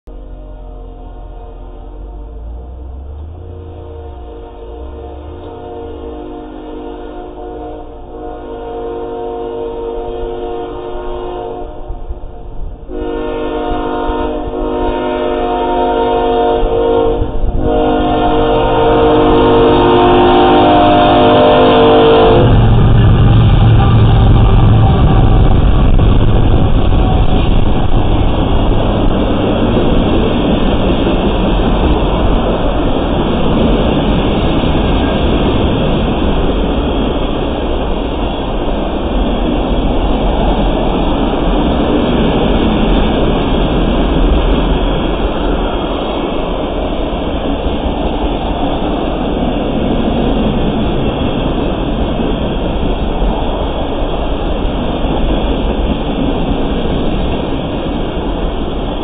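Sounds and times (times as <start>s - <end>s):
diesel locomotives rumbling: 0.0s - 59.0s
train wheels on rails: 0.1s - 59.0s
locomotive horn blasts: 0.2s - 28.2s.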